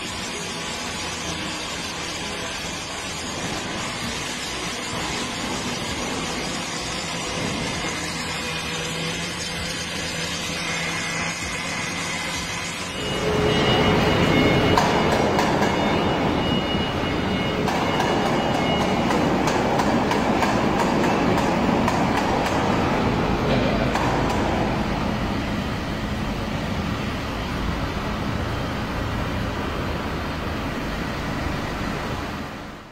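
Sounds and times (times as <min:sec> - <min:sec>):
faint high whine: 0:00.0 - 0:21.4
welding machinery running: 0:00.0 - 0:32.9.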